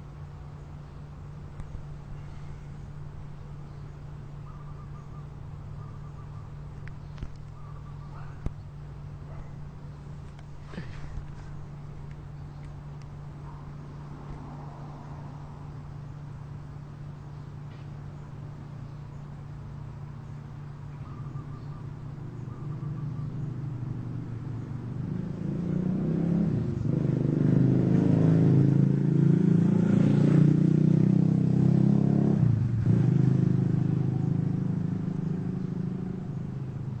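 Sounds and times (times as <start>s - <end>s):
large engine passing: 21.2s - 37.0s.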